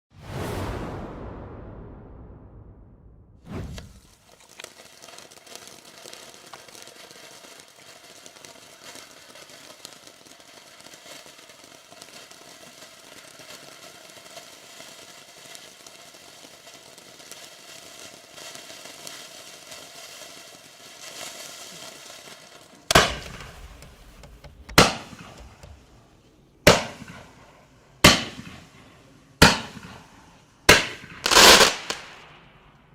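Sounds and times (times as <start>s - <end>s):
loud firework bangs: 3.0s - 4.2s, 22.8s - 32.9s
firework fountain hissing: 3.5s - 32.9s.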